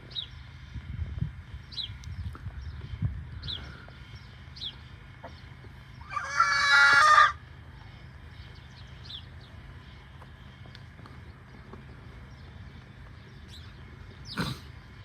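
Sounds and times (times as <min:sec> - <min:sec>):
rooster crowing: 0:06.0 - 0:07.4.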